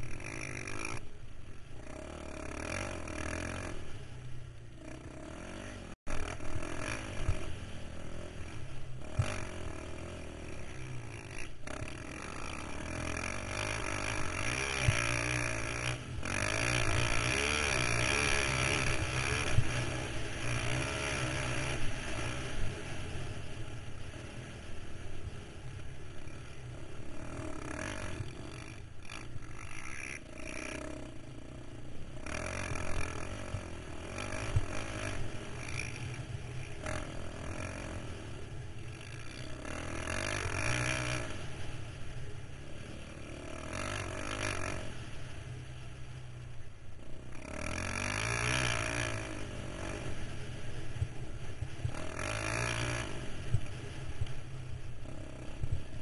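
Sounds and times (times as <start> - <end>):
quad engine revving: 0.0 - 1.1, 1.8 - 4.2, 4.8 - 41.7, 42.7 - 45.1, 47.0 - 56.0.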